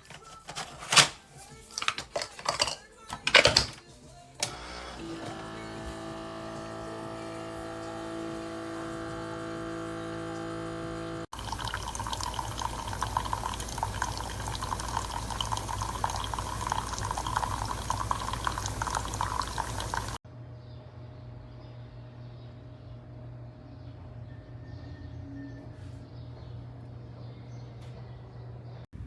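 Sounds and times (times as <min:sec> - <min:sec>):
coffee maker humming: 0:04.4 - 0:20.2
coffee streaming into cup: 0:04.4 - 0:20.2.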